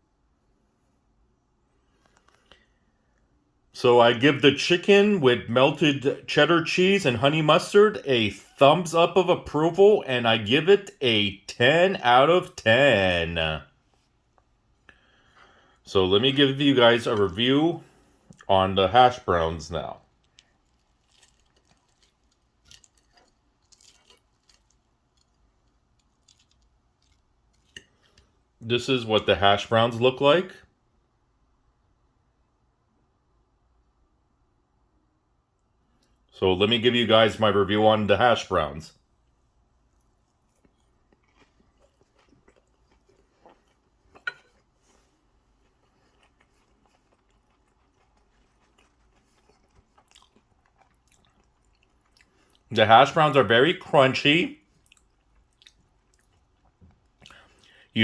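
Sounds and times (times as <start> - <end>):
person chewing crunchy food: 19.1 - 28.5, 39.8 - 52.7, 54.7 - 57.9.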